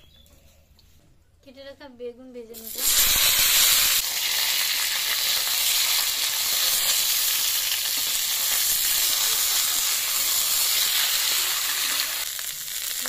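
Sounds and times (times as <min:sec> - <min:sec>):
vegetables sizzling in hot oil: 0:02.6 - 0:13.0.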